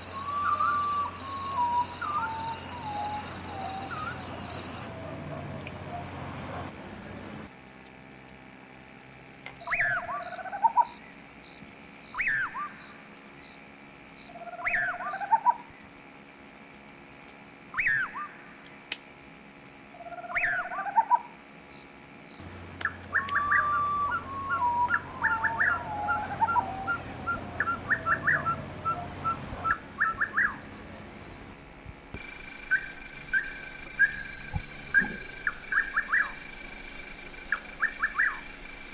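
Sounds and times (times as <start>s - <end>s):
bird whistling call: 0.0s - 4.9s, 22.8s - 30.6s, 32.7s - 36.5s, 37.5s - 38.5s
insects pulsing: 0.0s - 38.9s.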